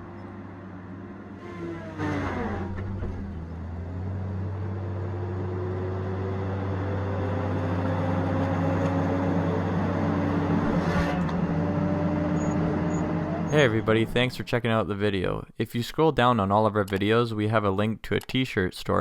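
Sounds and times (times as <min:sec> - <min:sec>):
diesel engine running: 0:00.0 - 0:14.3.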